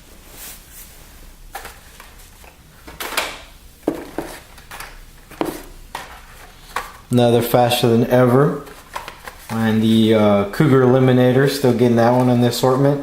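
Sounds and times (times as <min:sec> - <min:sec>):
plastic packaging clicks and rustles: 0:01.5 - 0:07.1, 0:08.6 - 0:09.6.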